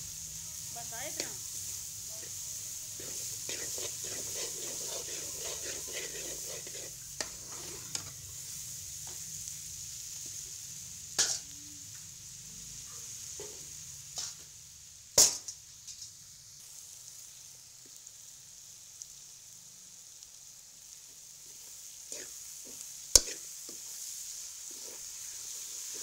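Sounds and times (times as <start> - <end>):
vegetables sizzling in oil: 0.0 - 26.0
metal spatula scraping pot: 3.0 - 8.2, 22.1 - 22.4, 23.2 - 23.8.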